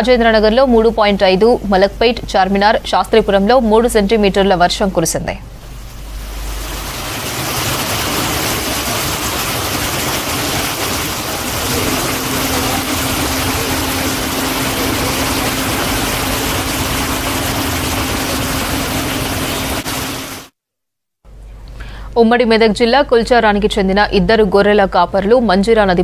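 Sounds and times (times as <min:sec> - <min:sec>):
steady engine hum: 0:05.4 - 0:20.5
heavy rain on street: 0:05.6 - 0:20.5
vehicle engines running: 0:06.7 - 0:20.5.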